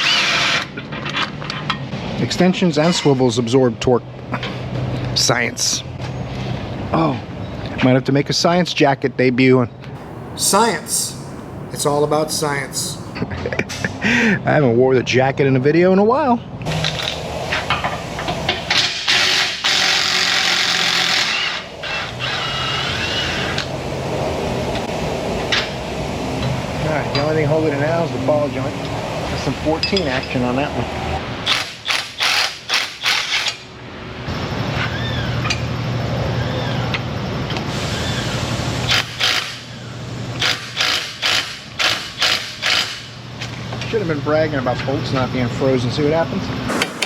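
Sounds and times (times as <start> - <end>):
power tool running: 46.7 - 47.0.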